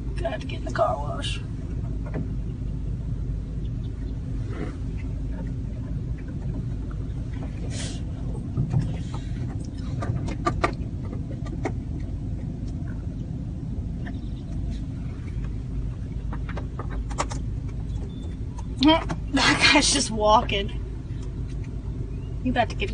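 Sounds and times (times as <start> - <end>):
car engine running: 0.0 - 22.9.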